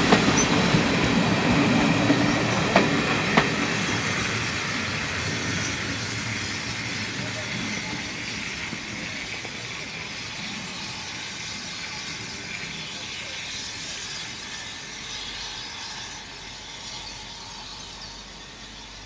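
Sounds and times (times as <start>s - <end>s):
steam train hiss and rumble: 0.0s - 19.0s.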